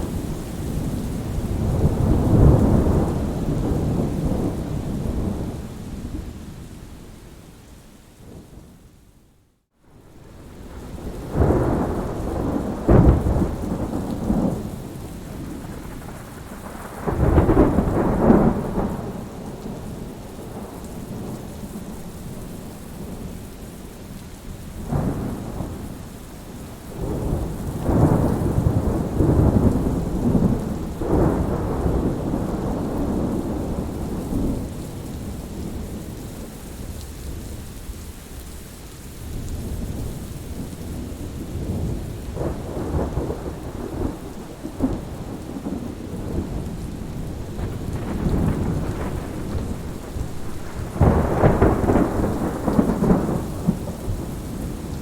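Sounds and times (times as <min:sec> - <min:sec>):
thunder rolling: 0:00.0 - 0:05.6, 0:10.3 - 0:21.3, 0:27.0 - 0:35.9, 0:40.0 - 0:55.0
steady rain hiss: 0:00.0 - 0:55.0.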